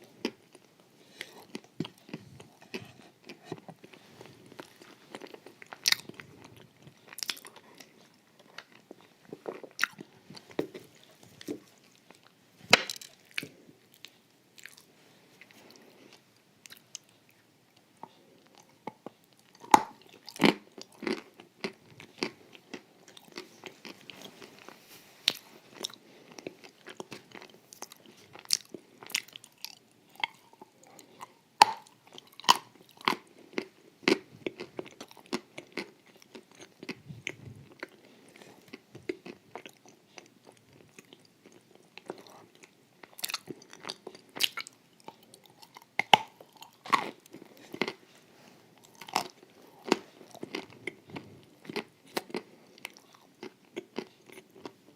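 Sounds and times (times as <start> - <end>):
crunchy wafer chewing: 0.0 - 54.9.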